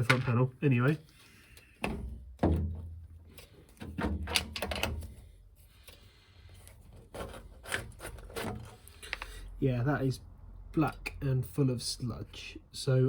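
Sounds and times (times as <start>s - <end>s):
hard plastic knocks and clunks: 1.8s - 3.0s, 3.8s - 5.0s.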